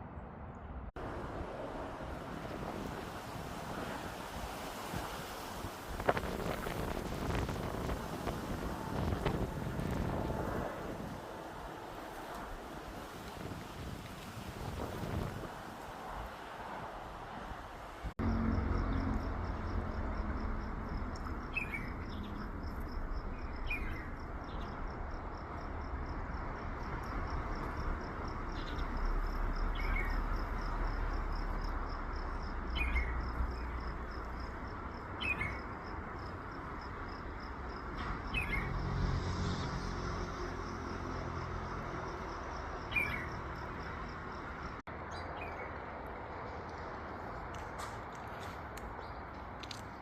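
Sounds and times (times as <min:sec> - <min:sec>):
wind: 0:00.0 - 0:50.0
insect trill: 0:18.2 - 0:39.0, 0:39.8 - 0:44.8
bird chirping: 0:21.1 - 0:24.8, 0:29.6 - 0:30.3, 0:32.6 - 0:33.8, 0:35.2 - 0:35.6, 0:42.8 - 0:43.5.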